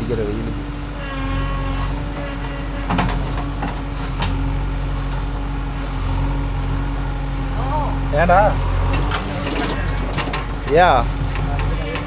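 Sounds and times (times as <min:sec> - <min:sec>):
diesel engine running: 0:00.0 - 0:12.0
short knocks: 0:01.0 - 0:04.4.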